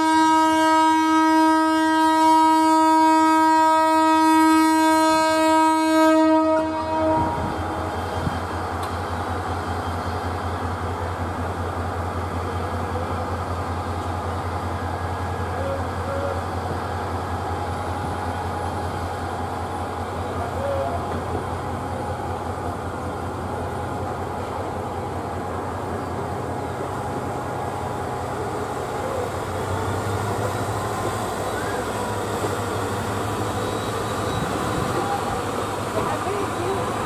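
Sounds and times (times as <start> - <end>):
locomotive air horn blast: 0.0 - 7.9
diesel engine rumbling: 7.0 - 37.0.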